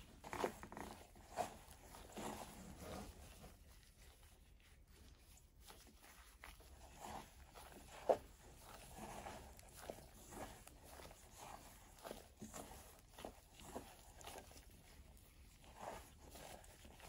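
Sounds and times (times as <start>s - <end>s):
dough squishing and rustling: 0.0s - 17.0s.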